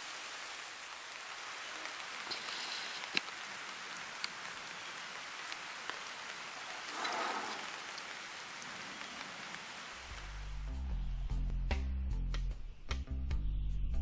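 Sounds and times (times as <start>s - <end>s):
rain falling: 0.0s - 10.9s.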